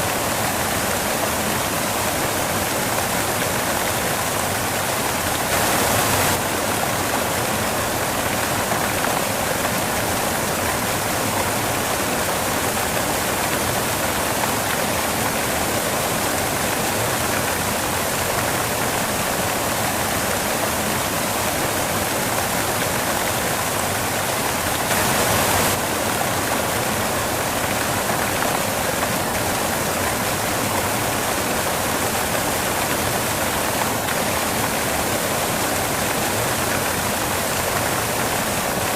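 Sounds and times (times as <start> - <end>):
steady white noise hiss: 0.0 - 38.9.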